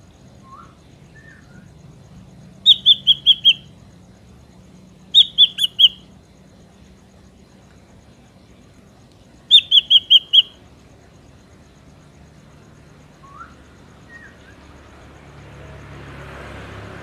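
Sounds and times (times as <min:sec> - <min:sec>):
faint background hiss: 0:00.0 - 0:15.8
bird calling sharp high notes: 0:02.6 - 0:03.7, 0:05.2 - 0:06.0, 0:09.5 - 0:10.5.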